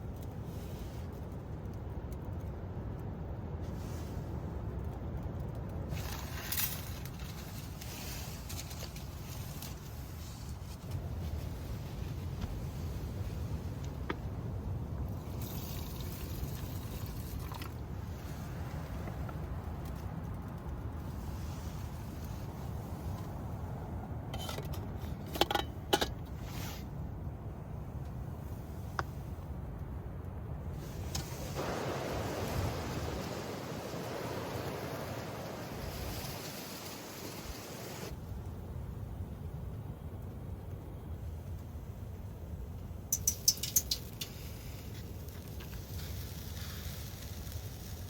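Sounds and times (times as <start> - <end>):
steady low rumble: 0.0 - 43.2
short rustling hiss: 30.8 - 38.1.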